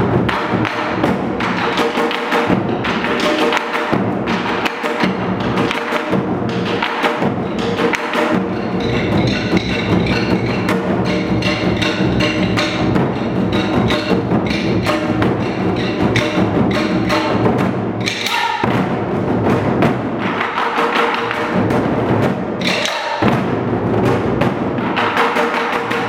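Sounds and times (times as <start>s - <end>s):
barrel drums beaten with sticks: 0.0s - 26.0s
sharp clicking stick hits: 18.0s - 18.7s.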